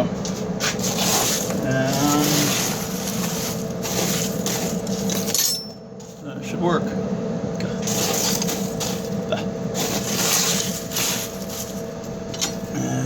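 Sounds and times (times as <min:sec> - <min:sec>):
blower fan hum: 0:00.0 - 0:13.0
fire crackling: 0:00.3 - 0:05.3, 0:07.6 - 0:12.8.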